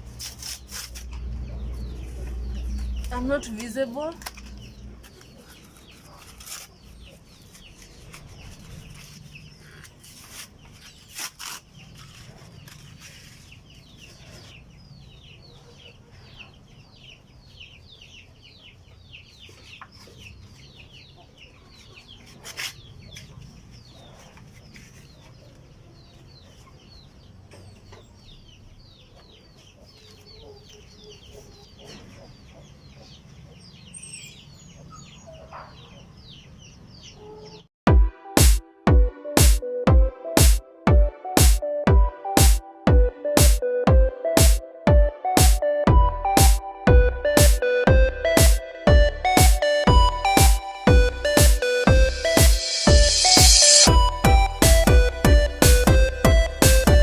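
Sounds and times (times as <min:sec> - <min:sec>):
chickens peeping and clucking: 0:11.7 - 0:37.7.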